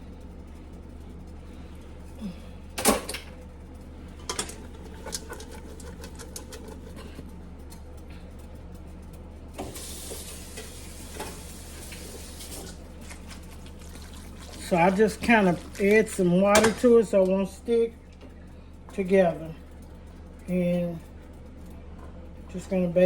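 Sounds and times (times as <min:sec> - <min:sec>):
utensil scraping in a pot: 0:03.9 - 0:07.8, 0:09.7 - 0:17.6
water hissing in a pot: 0:09.6 - 0:16.2.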